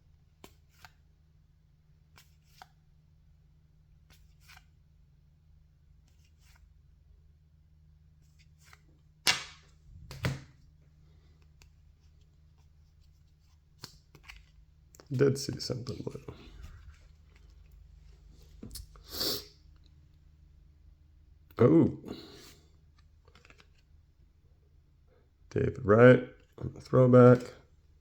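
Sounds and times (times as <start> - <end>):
trading cards being flipped through: 0.4 - 1.0, 2.1 - 2.8, 4.0 - 4.7, 8.2 - 10.6, 11.4 - 19.0, 22.4 - 23.9
card snaps: 9.2 - 10.5.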